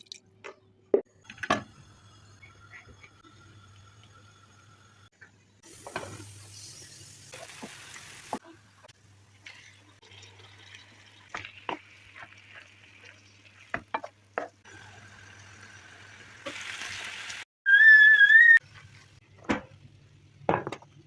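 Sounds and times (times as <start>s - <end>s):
food sizzling in a pan: 1.7s - 17.5s.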